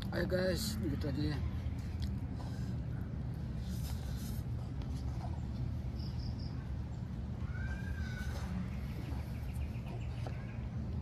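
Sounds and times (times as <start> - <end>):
birds chirping: 2.8 - 11.0.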